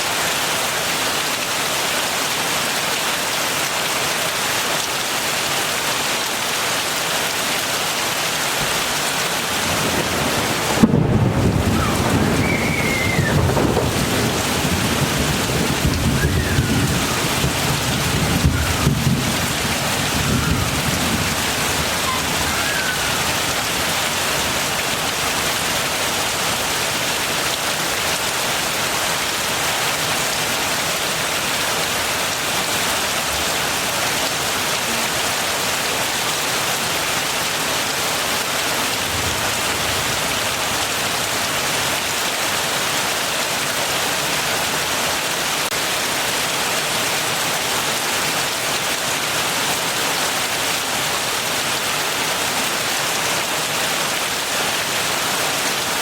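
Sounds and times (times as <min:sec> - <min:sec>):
heavy rain hissing: 0:00.0 - 0:56.0
thunder rumbling: 0:09.5 - 0:24.7.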